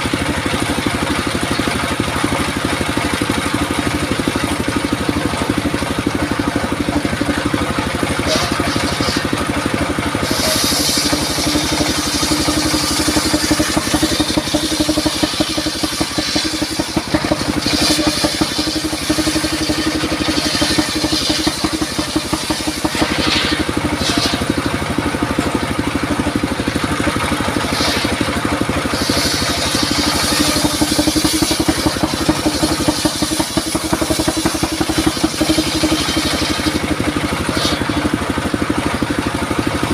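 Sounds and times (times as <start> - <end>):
circular saw running: 0.0 - 39.9
saw blade cutting wood hiss: 6.4 - 38.5.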